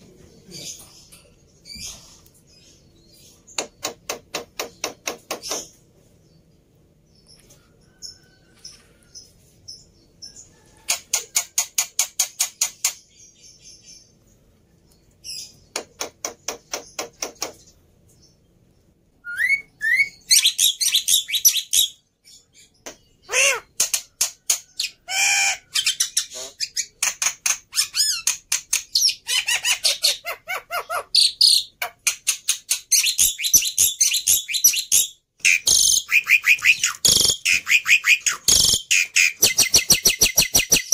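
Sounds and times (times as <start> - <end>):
starling singing: 19.2 - 22.5, 32.9 - 40.9.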